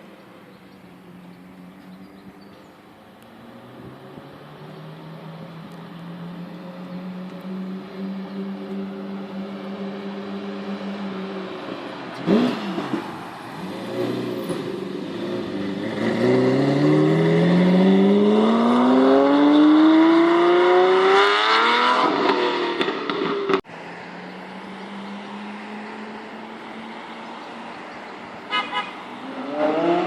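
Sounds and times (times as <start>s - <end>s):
sports car engine revving: 3.3s - 23.6s, 28.7s - 30.0s.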